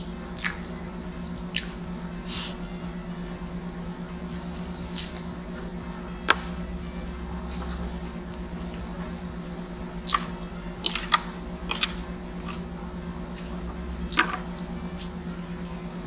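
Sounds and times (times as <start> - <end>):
steady low hum: 0.0 - 16.0
wet chewing with clicks: 0.3 - 2.6, 4.5 - 5.3, 7.4 - 8.9, 9.8 - 12.7, 13.3 - 15.1.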